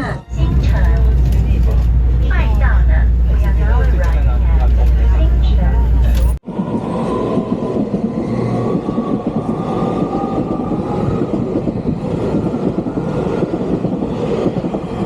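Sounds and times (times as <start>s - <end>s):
train rumbling along rails: 0.0s - 15.0s.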